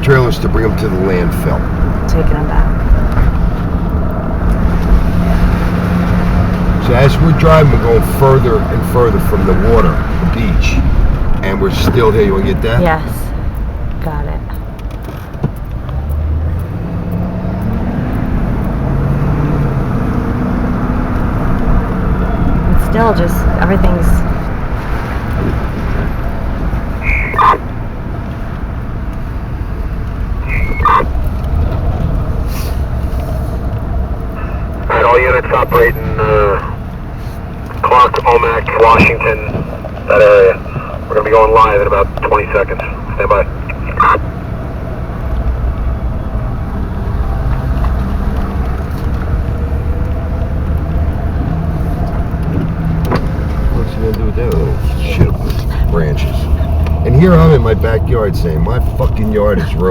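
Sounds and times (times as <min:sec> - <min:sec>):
car engine and road rumble: 0:00.0 - 0:59.9
short high beep: 0:27.0 - 0:27.6, 0:30.5 - 0:31.0.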